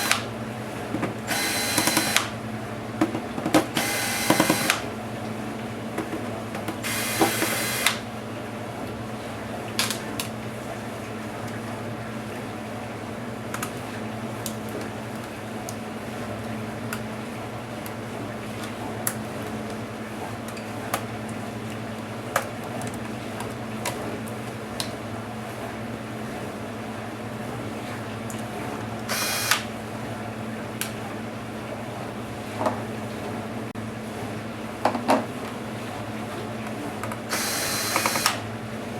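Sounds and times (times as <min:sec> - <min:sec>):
clicks and taps of tools: 0:36.6 - 0:37.2.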